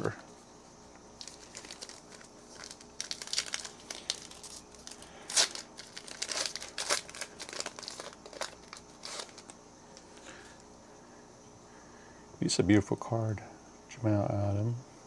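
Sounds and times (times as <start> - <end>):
plastic wrapper crinkling and tearing: 1.2 - 9.6.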